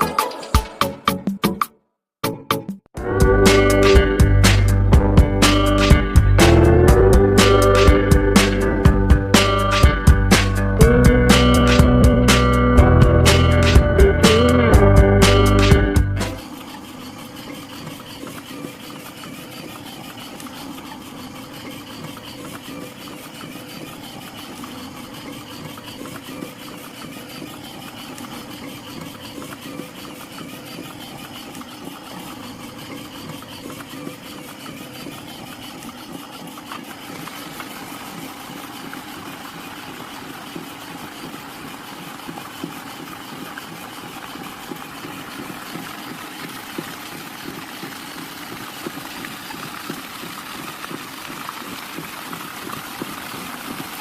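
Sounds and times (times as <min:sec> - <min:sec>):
small water pump motor humming: 0:03.0 - 0:54.0.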